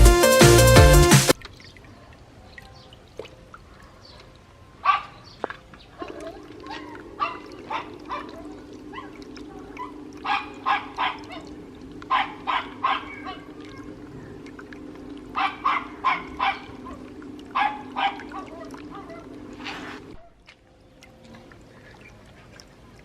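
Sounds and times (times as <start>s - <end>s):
animal barking: 4.8s - 5.3s, 5.9s - 14.4s, 15.1s - 20.4s
steady low hum: 6.1s - 20.2s.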